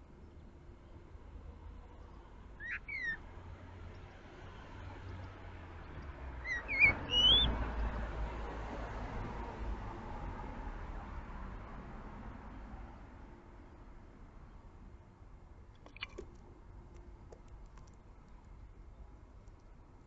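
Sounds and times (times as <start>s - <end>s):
blackbird whistled calls: 2.6s - 3.2s, 6.5s - 7.5s.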